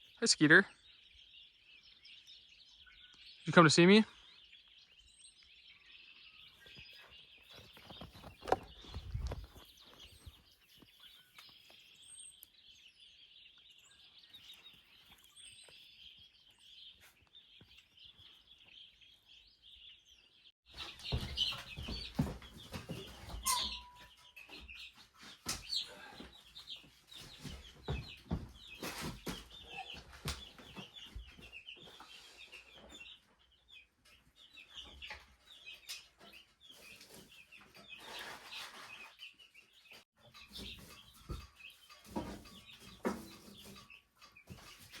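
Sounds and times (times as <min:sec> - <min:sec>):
chicks peeping: 0:00.0 - 0:45.0
rustling: 0:07.4 - 0:11.8.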